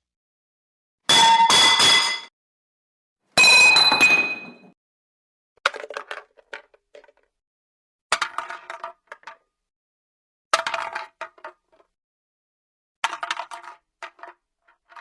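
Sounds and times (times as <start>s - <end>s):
metal clinks and bounces: 1.1s - 2.3s, 3.4s - 4.7s
metal objects crashing on floor: 1.1s - 2.3s, 3.4s - 4.7s.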